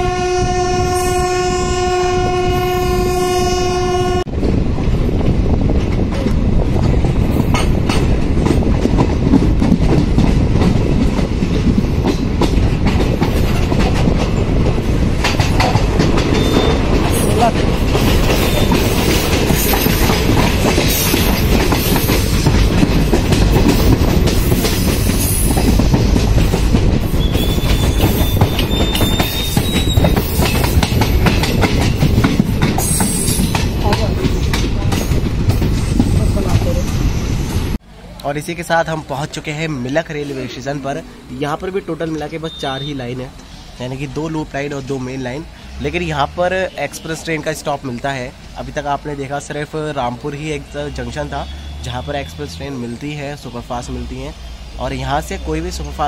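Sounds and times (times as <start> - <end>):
train horn blast: 0.0 - 4.3
train wheels clattering over rails: 4.8 - 37.8.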